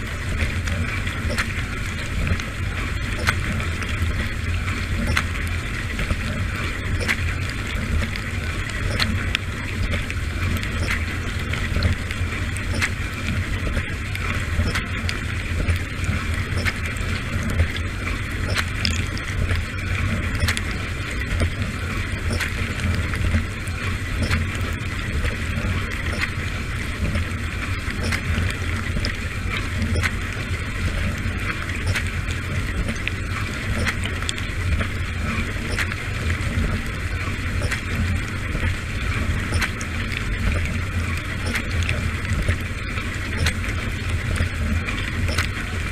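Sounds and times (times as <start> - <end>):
low pump hum: 0.0 - 45.9
water ticks: 0.0 - 45.9.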